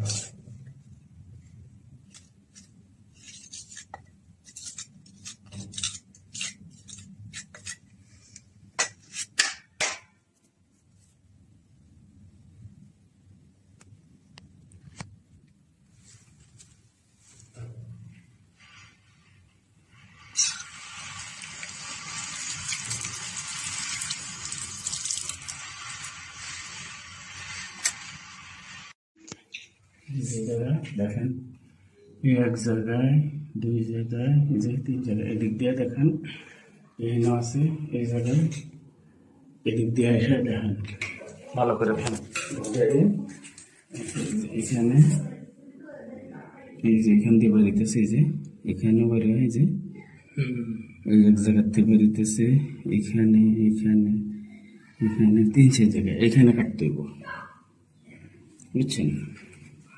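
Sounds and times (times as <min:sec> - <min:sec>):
tools scraping and clicking: 0:02.1 - 0:10.0
water hissing from leaking pipe: 0:20.0 - 0:29.0.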